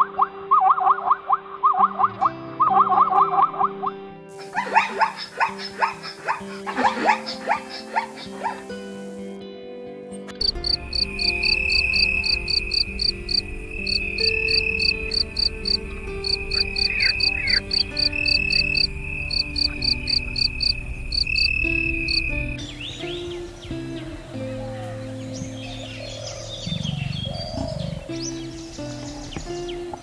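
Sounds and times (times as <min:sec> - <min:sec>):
soft background music: 0:00.0 - 0:30.0
insect trill: 0:10.4 - 0:22.6
crickets chirping: 0:10.4 - 0:22.9.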